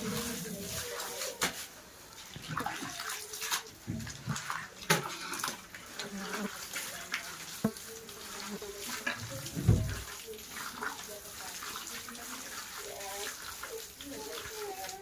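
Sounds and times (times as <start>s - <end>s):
mud sloshing and splashing: 0.0s - 15.0s.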